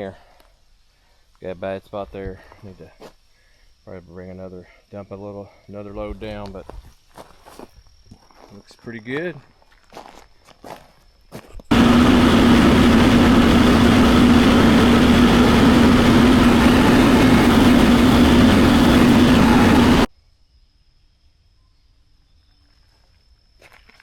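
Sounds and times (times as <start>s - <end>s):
tractor diesel engine running: 11.7s - 20.1s.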